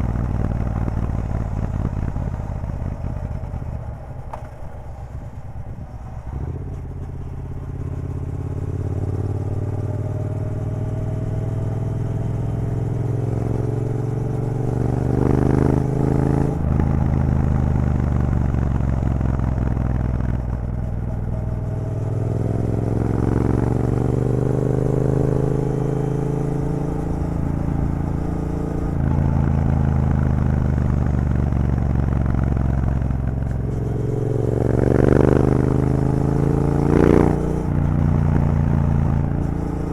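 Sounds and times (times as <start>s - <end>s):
loud motorcycle engine revving: 11.1s - 17.3s, 22.1s - 39.9s.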